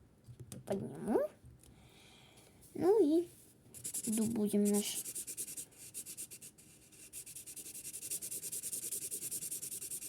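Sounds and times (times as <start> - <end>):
marker scratching on paper: 3.8 - 10.0.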